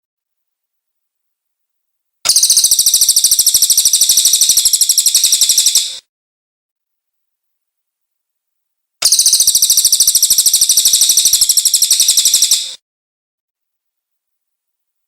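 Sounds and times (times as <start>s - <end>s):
bird high-pitched rapid trill: 2.3s - 6.0s, 9.0s - 12.8s.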